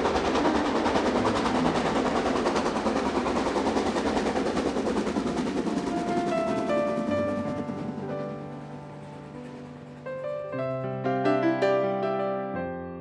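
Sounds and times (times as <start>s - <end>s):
fast rattle of knocks: 0.0s - 10.4s.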